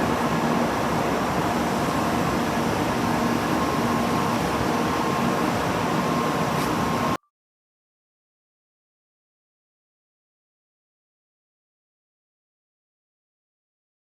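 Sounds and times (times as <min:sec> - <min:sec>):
steady mechanical hum: 0:00.0 - 0:07.2.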